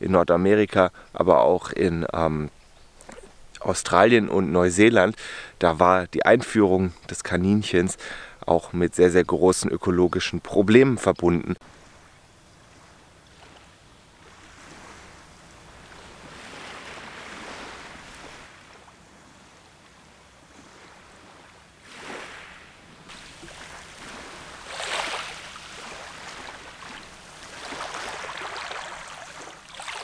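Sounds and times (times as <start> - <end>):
small waves washing onto shore: 11.6 - 30.0.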